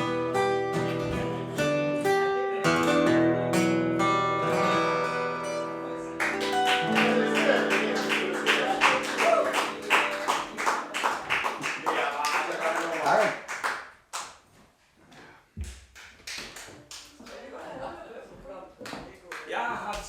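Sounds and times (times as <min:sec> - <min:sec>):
acoustic guitar strummed chords: 0:00.0 - 0:11.6
guitar rhythmic strikes: 0:00.0 - 0:11.8.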